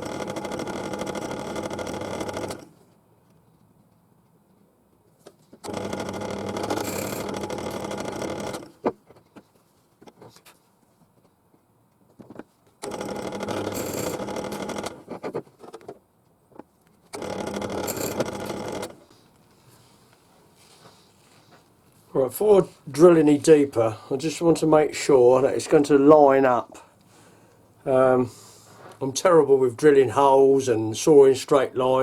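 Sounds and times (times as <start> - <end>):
drill press drilling into wood: 0.0 - 2.7, 5.6 - 8.7, 12.8 - 15.2, 17.1 - 19.0.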